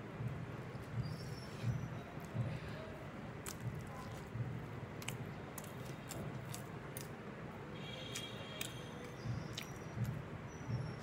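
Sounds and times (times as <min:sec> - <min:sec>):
chewing food: 0:03.3 - 0:07.2, 0:08.0 - 0:10.2
wet mouth clicks and smacks: 0:03.4 - 0:04.3, 0:05.0 - 0:07.2, 0:08.1 - 0:10.2.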